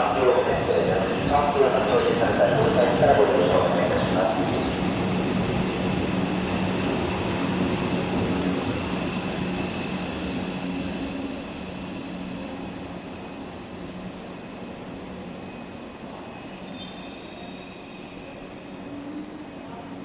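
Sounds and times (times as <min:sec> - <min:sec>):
electric train hum: 0:00.0 - 0:16.2.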